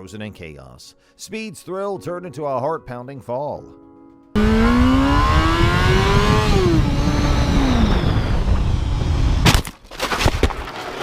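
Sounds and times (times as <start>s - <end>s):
motorcycle engine revving: 4.4s - 9.4s
loud sharp crash: 9.4s - 10.7s.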